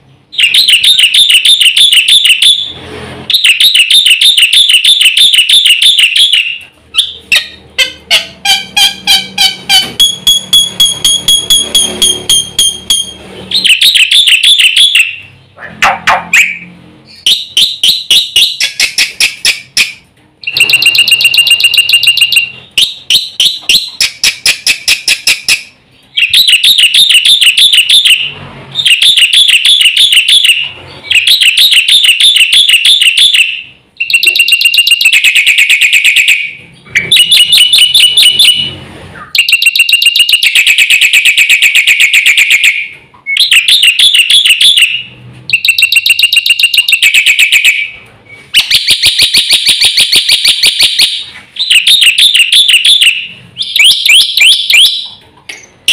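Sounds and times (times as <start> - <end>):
starling singing: 0.3 - 19.7, 48.6 - 55.2.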